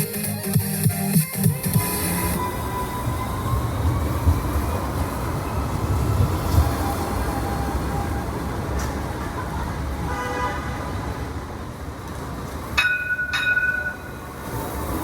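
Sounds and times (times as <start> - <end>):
street traffic: 0.0 - 15.0
low rumble of tram: 1.9 - 15.0
tram horn toots: 10.0 - 11.1.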